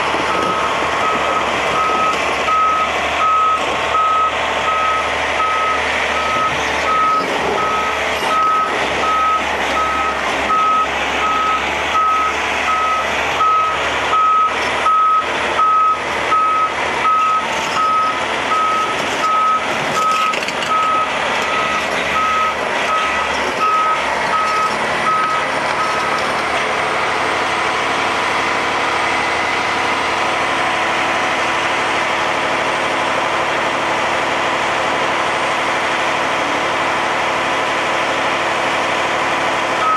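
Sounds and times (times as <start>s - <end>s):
truck reversing alarm beeping: 0.0s - 30.1s
truck engine running: 0.0s - 39.9s.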